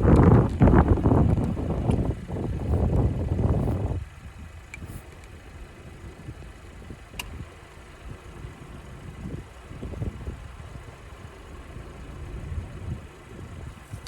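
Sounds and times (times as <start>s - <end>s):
car engine idling: 0.0s - 14.0s
light click: 7.1s - 7.4s.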